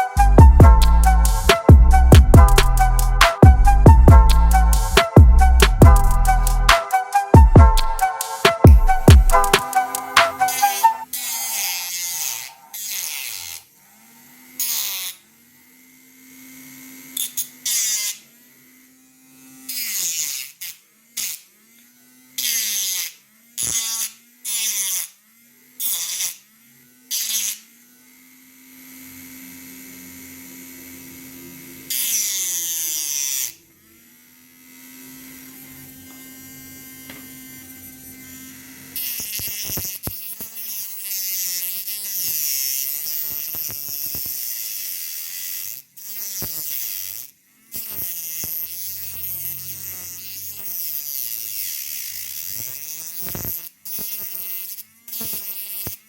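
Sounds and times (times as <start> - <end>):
mini grinder motor whirring: 0.0 - 56.0.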